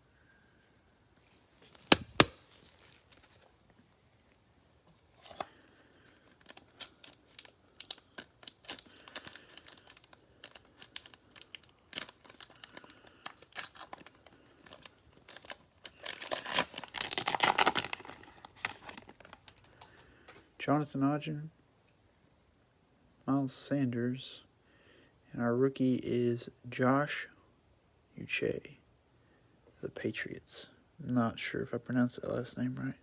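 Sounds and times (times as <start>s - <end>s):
cellophane tearing and crinkling: 1.5s - 3.5s, 5.2s - 19.9s.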